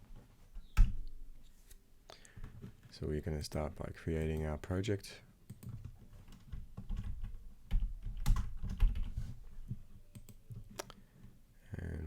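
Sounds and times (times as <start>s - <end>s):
typing on computer keyboard: 5.5s - 9.1s.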